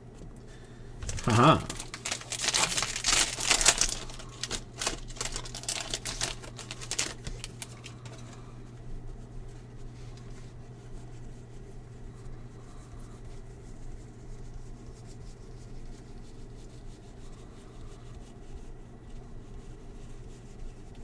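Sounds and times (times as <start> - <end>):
cards flipping: 1.0 - 8.2.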